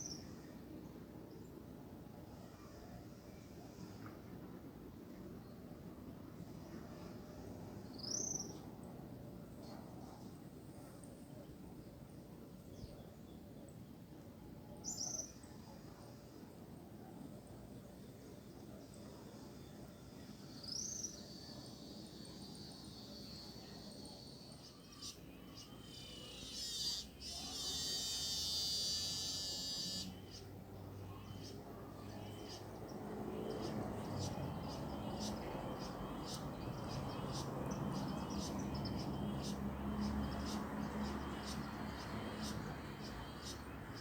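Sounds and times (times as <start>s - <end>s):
faint low background noise: 0.0s - 44.0s.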